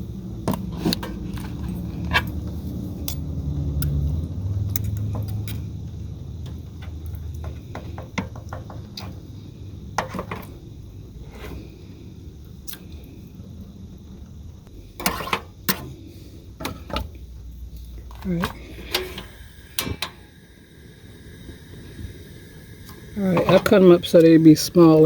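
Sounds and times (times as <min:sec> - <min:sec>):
metal utensil scraping a pan: 0:15.0 - 0:16.0.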